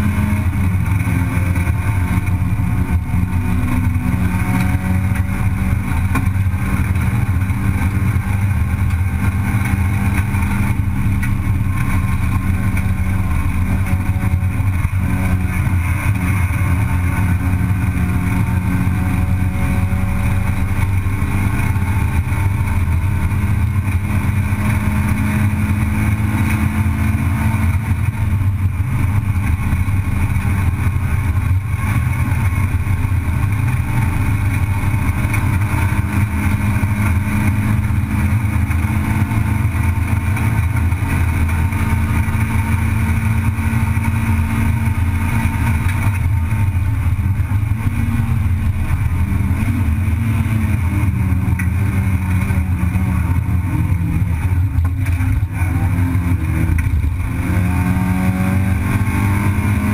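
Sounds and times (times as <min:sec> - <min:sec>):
race car engine at high revs: 0:00.0 - 0:59.9.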